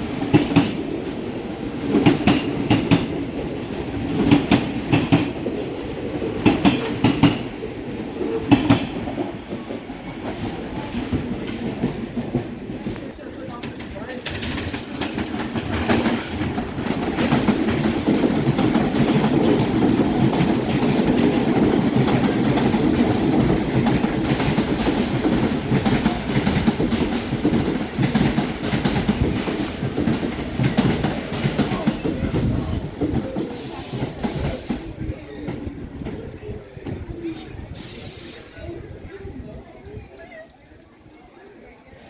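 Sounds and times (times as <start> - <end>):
wheels clacking over rail joints: 0.0 - 34.7
subway train rumbling: 0.0 - 42.0
brief hiss: 37.4 - 38.6.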